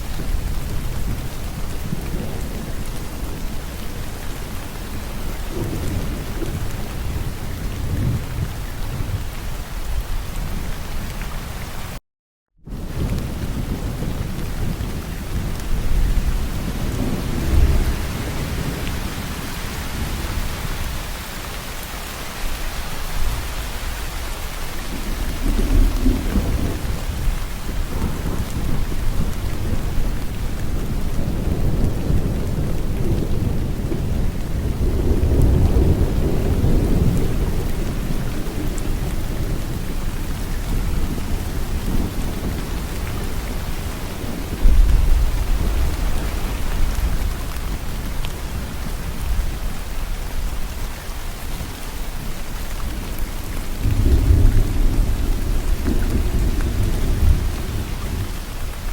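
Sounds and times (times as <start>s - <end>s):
rolling thunder: 0.0s - 9.3s, 12.7s - 21.2s, 24.6s - 58.9s
heavy rain hissing: 12.7s - 58.9s.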